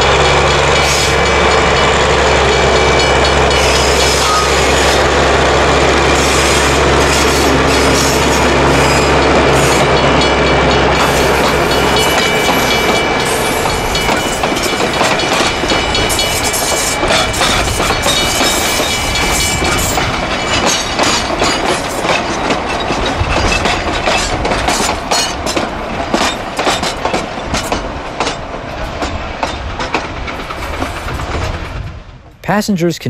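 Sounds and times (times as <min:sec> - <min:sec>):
high wheel squeal: 0:03.0 - 0:05.0
wheels clicking over rail joints: 0:06.0 - 0:31.8.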